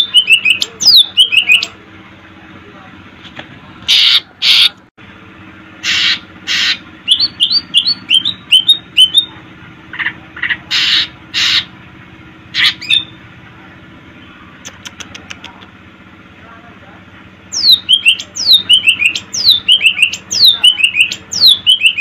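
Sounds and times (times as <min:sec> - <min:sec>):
bird singing harsh scratchy notes: 0:00.0 - 0:01.8, 0:05.8 - 0:09.3, 0:17.5 - 0:22.0
steady low hum: 0:00.0 - 0:22.0.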